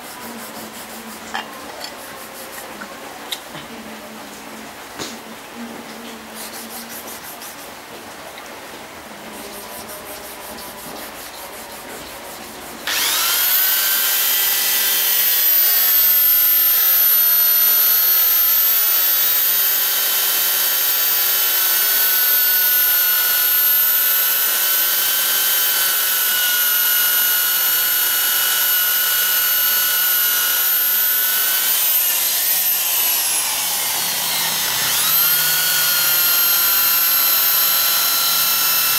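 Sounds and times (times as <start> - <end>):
power tool high whine: 12.8 - 38.9.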